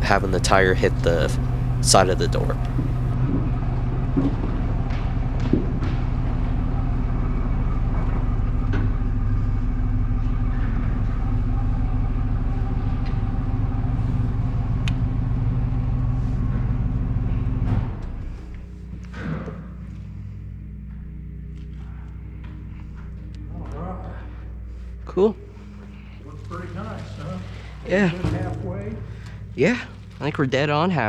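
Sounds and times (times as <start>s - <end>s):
truck engine running: 0.0s - 3.2s.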